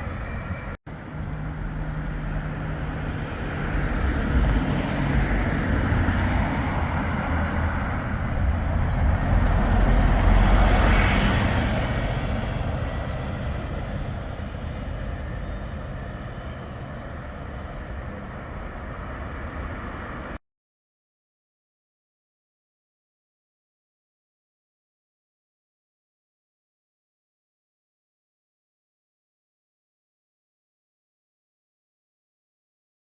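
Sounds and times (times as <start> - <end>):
heavy vehicle passing: 0.0 - 20.4.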